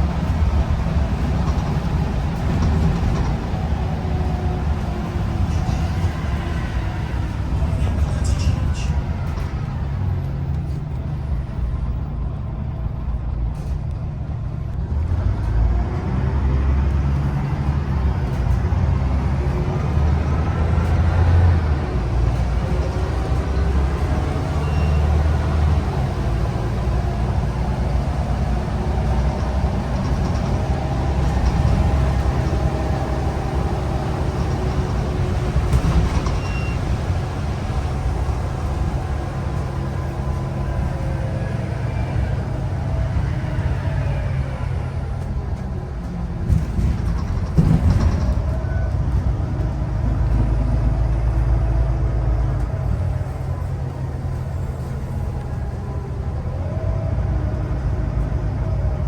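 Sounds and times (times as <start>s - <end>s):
bus diesel engine rumbling: 0.0s - 59.0s
rising engine whine: 14.8s - 59.0s.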